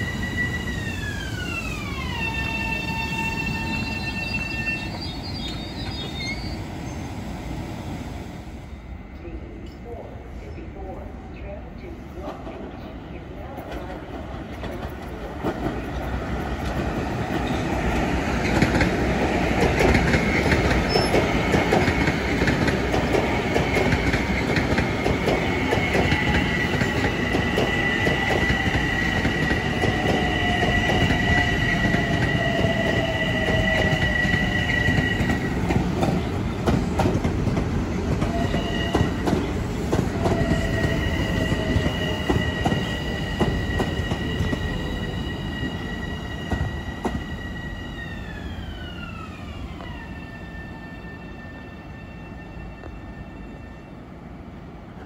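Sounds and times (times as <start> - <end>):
high wheel squeal: 0.0 - 7.0, 40.3 - 48.6
train wheels rumbling on rail: 0.0 - 8.6, 9.2 - 55.0
rail joint clicks: 13.4 - 45.1, 46.4 - 47.4.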